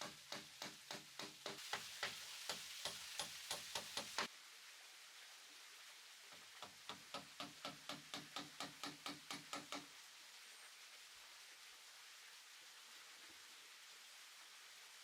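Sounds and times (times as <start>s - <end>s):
hand tool striking wood: 0.0s - 4.3s, 6.9s - 9.9s.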